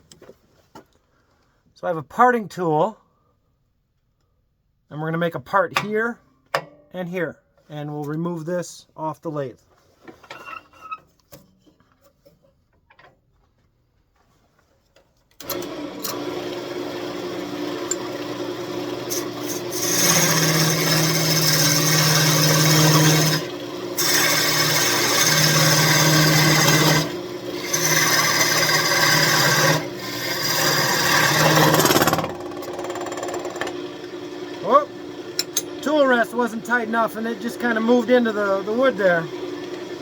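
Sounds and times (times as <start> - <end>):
parting tool cutting wood: 15.4 - 40.0
wood lathe running: 15.4 - 40.0.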